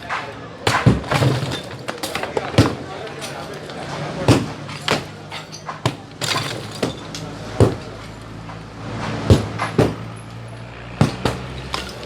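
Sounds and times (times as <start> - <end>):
crashes of breaking material: 4.3 - 7.9.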